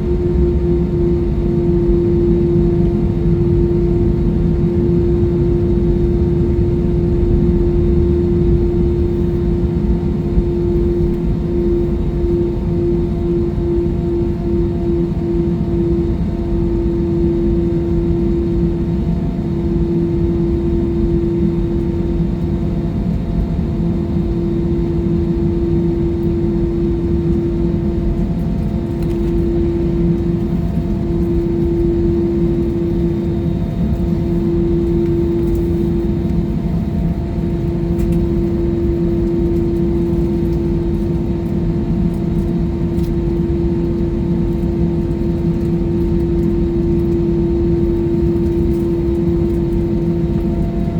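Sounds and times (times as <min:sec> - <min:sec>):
jet airliner cabin rumble: 0:00.0 - 0:50.9.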